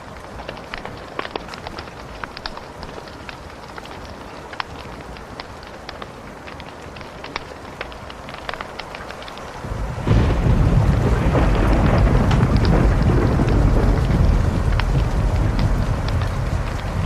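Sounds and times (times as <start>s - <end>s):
wood fire crackling and popping: 0.0s - 17.0s
deep rolling thunder: 9.6s - 17.0s.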